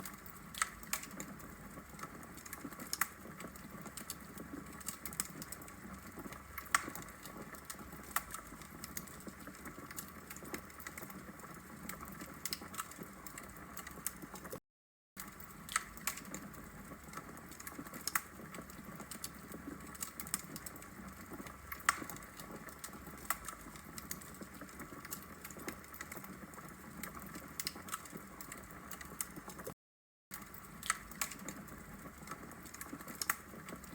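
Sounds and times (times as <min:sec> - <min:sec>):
logs crackling in fireplace: 0:00.0 - 0:14.6, 0:15.2 - 0:33.9.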